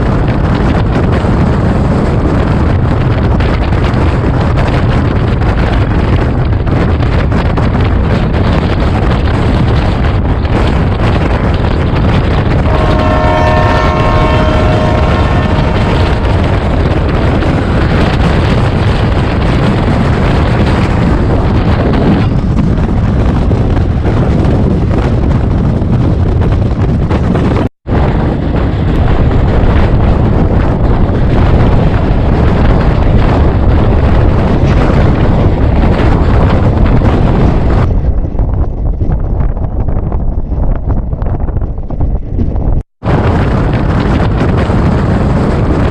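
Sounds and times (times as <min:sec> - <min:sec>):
express train running: 0:00.0 - 0:45.9
wind buffeting microphone: 0:00.0 - 0:45.9
train horn: 0:12.6 - 0:18.1.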